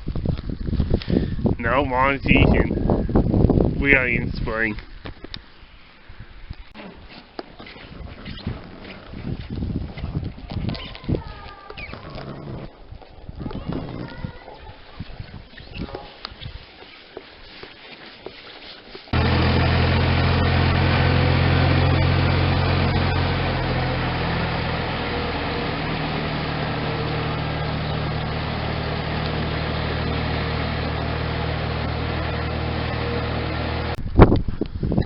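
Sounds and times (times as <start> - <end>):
motor humming: 19.2 - 34.0.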